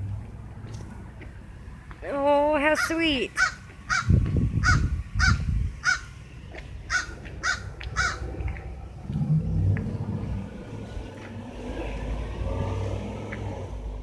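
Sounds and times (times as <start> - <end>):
crow cawing: 3.4 - 6.1, 6.9 - 8.3
low rumble: 6.4 - 14.0.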